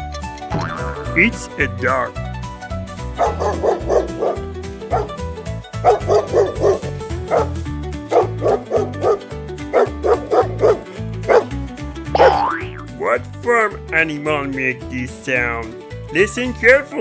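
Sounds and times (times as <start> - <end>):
dog barking: 4.9 - 5.1, 7.3 - 7.5, 8.1 - 11.5.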